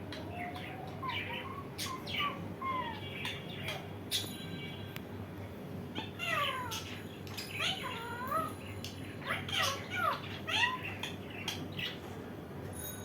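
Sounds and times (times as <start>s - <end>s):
parrot calls: 0.1s - 4.3s, 6.0s - 12.0s.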